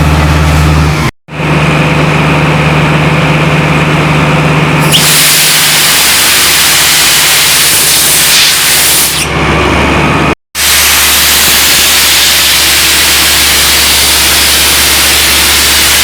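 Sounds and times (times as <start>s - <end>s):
diesel truck engine running: 0.0s - 4.9s, 9.2s - 16.0s
loud rushing hiss: 4.8s - 9.3s, 10.6s - 16.0s.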